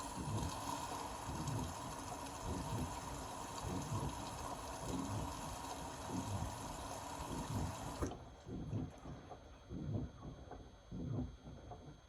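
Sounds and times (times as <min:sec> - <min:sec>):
water running into washing machine: 0:00.0 - 0:08.2
water sloshing in drum: 0:00.0 - 0:09.0.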